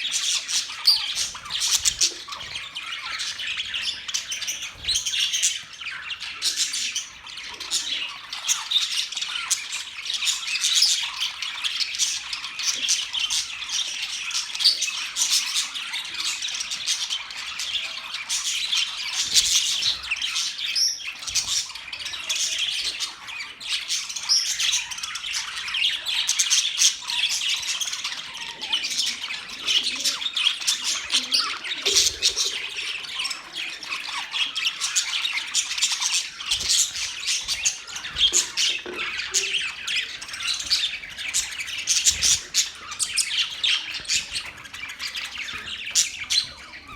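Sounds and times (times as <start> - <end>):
budgerigars chattering: 0.0 - 46.9.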